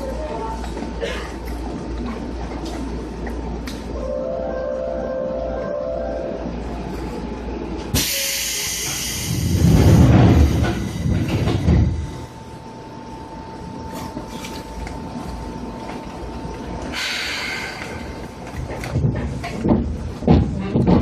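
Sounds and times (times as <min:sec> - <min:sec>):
train running gear rumble: 0:00.0 - 0:21.0
air hissing: 0:08.0 - 0:09.7.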